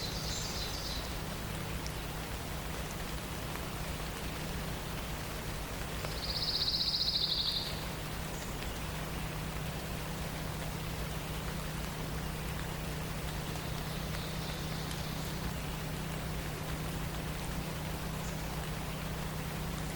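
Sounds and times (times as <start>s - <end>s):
songbird trill: 0.0s - 1.2s, 6.1s - 9.4s, 13.3s - 15.8s.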